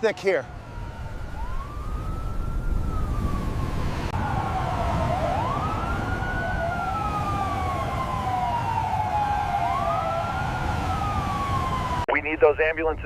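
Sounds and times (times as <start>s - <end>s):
emergency siren wailing: 0.0s - 12.6s.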